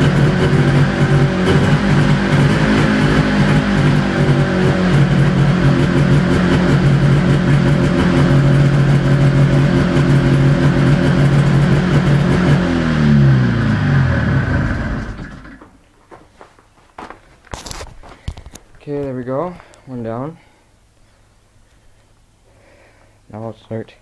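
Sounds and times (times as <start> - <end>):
snowmobile engine running: 0.0 - 15.6.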